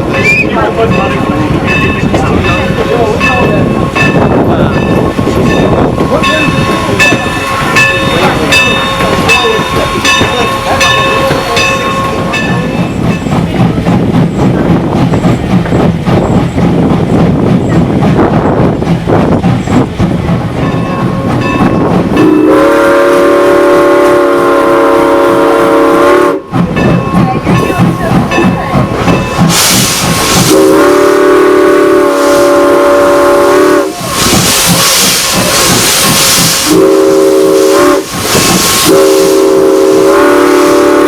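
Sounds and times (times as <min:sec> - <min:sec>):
steam locomotive rumbling: 0:00.0 - 0:41.0
steam whistle blast: 0:22.2 - 0:26.5, 0:29.6 - 0:35.3, 0:36.2 - 0:41.0
steam hiss: 0:27.8 - 0:41.0.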